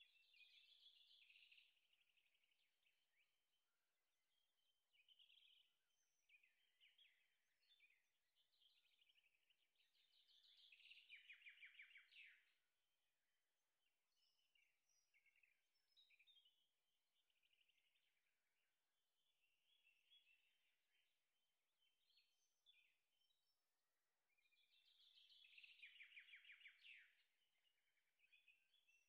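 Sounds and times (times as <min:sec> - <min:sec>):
birds chirping: 0:00.0 - 0:03.4, 0:04.9 - 0:12.6, 0:24.3 - 0:29.0.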